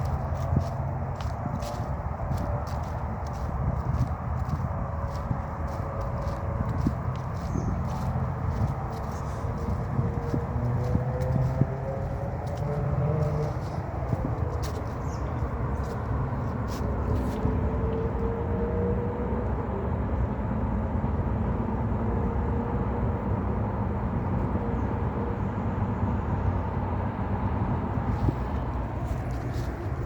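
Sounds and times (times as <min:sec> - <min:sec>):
low rumble: 0:00.0 - 0:17.4.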